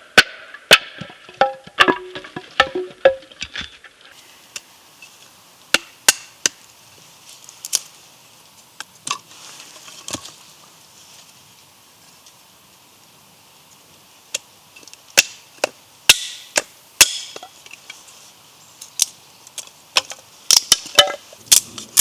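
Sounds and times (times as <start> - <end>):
wood being chopped: 5.7 - 6.6, 15.2 - 17.6, 20.0 - 22.0.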